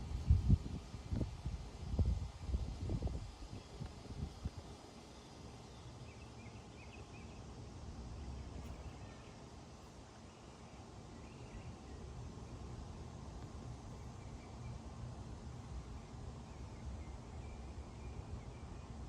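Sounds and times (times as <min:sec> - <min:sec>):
faint bird chirps: 0:05.1 - 0:07.5, 0:08.4 - 0:12.1.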